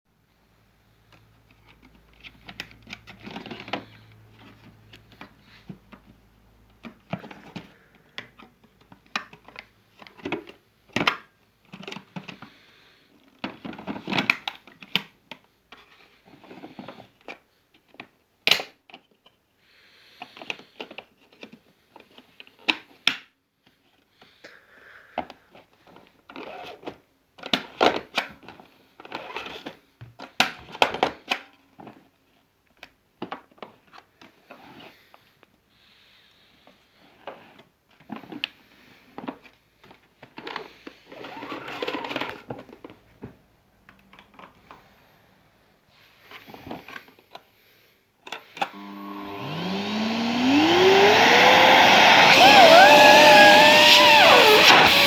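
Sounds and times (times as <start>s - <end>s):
vacuum cleaner motor whine: 48.6s - 55.0s.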